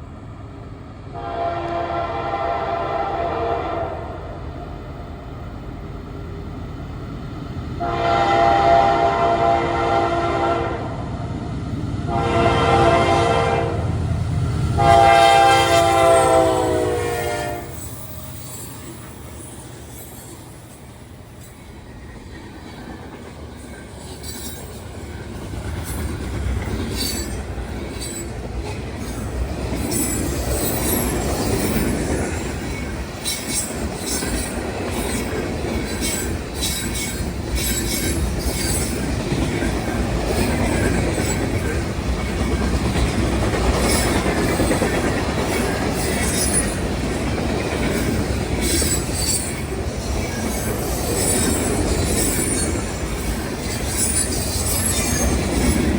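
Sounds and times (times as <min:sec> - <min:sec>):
freight train rumble and clatter: 0:00.0 - 0:55.9
high wheel squeals: 0:15.8 - 0:22.3, 0:29.0 - 0:39.0, 0:47.9 - 0:55.9.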